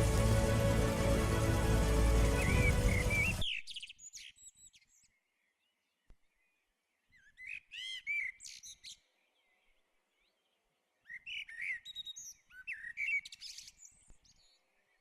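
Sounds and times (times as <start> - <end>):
background music: 0.0 - 3.5.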